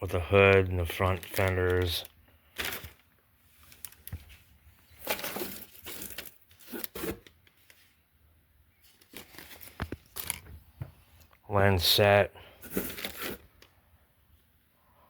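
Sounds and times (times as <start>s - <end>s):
plastic bags crinkling: 0.4s - 7.8s, 8.9s - 10.5s, 12.6s - 13.7s.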